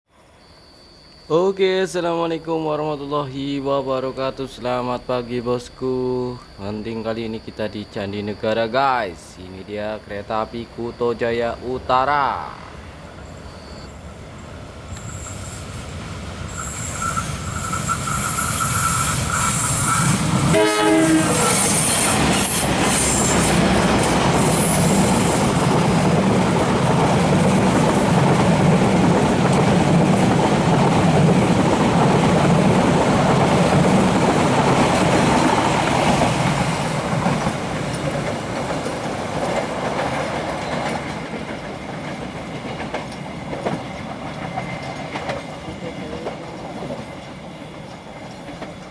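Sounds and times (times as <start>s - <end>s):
train passing with wheel clatter: 10.3s - 48.9s
locomotive horn: 18.8s - 22.1s.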